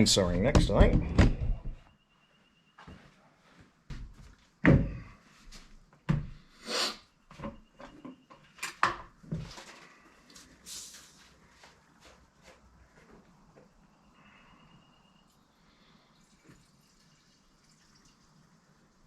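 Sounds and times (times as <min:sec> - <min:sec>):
hard objects knocking and clunking: 0:00.4 - 0:01.8, 0:04.6 - 0:05.1.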